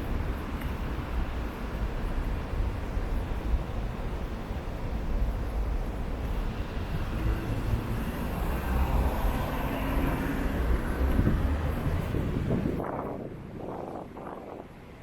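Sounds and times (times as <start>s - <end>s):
low rumble of passing vehicles: 0.0s - 15.0s
vehicle engine passing by: 7.1s - 12.8s.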